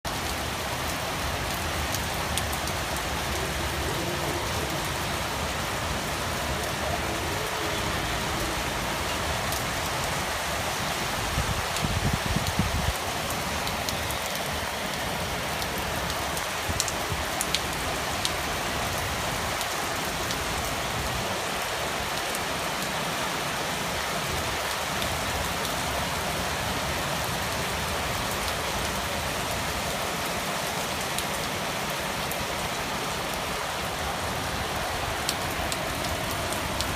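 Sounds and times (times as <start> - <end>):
heavy rain on hard surfaces: 0.0 - 36.9.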